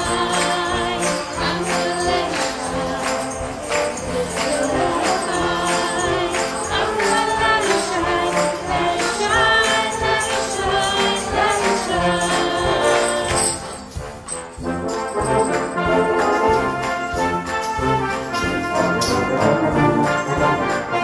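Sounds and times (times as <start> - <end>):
choir singing with instruments: 0.0 - 21.0
tambourine beat: 0.0 - 21.0.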